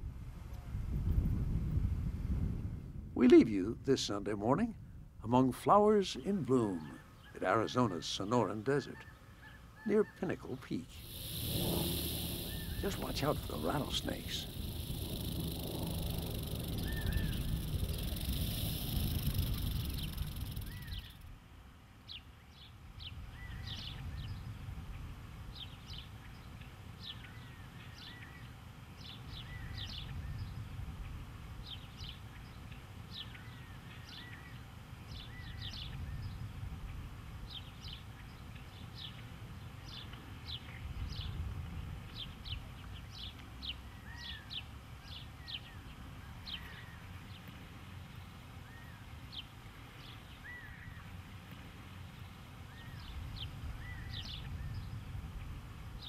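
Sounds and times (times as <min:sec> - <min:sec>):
soft whistled bird notes: 0:11.0 - 0:21.2
small birds chirping: 0:11.0 - 0:21.3, 0:42.2 - 0:55.0
steady low rumble: 0:11.0 - 0:21.3.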